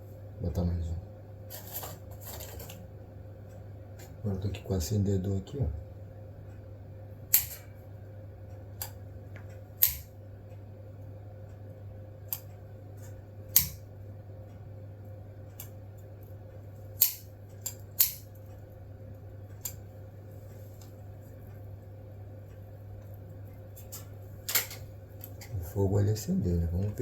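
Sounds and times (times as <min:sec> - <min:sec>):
lighter clicking: 0:07.3 - 0:07.6, 0:09.8 - 0:10.1, 0:17.0 - 0:18.3.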